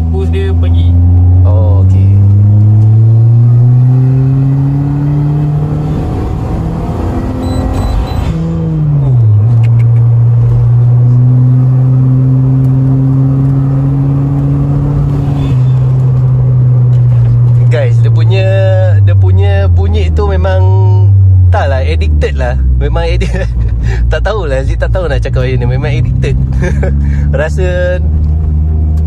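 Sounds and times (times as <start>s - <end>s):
car engine accelerating: 0.0s - 29.0s.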